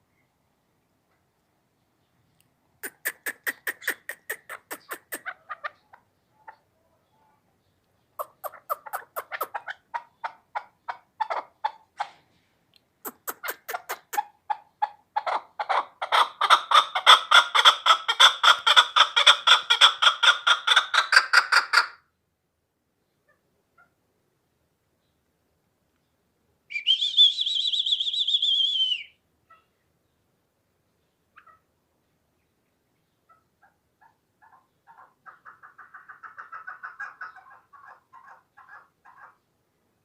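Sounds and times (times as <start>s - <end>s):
partridge clucking call: 2.8s - 6.7s, 8.1s - 12.2s, 13.0s - 22.0s, 34.4s - 39.4s.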